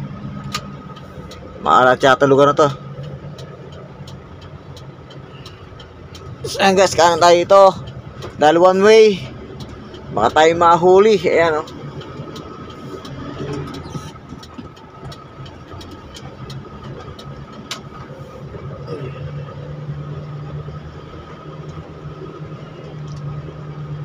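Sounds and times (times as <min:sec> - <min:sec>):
car engine hum: 0:00.0 - 0:24.0
road noise: 0:00.0 - 0:24.0
faint clicks: 0:02.7 - 0:10.5, 0:11.1 - 0:18.9.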